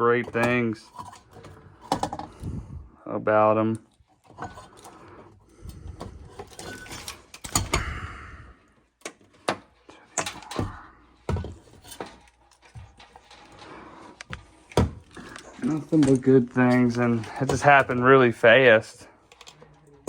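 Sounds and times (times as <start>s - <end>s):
tools clicking and clinking: 5.7s - 7.9s, 9.0s - 13.6s, 19.2s - 20.0s.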